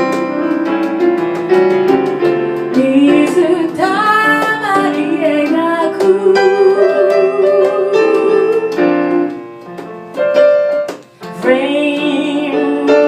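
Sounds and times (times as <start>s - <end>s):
pop ballad on keyboard: 0.0s - 13.0s
person singing: 2.8s - 9.0s, 11.4s - 13.0s.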